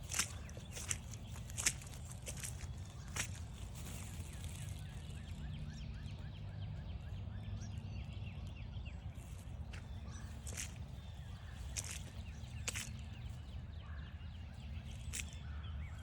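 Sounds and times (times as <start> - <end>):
footstep: 0.0 - 5.6, 9.2 - 13.6, 14.8 - 16.0.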